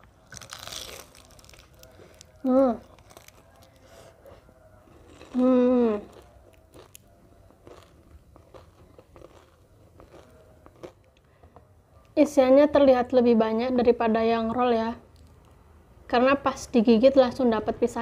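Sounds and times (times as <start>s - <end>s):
faint crunching: 0.0s - 11.7s
person chewing: 0.2s - 11.1s.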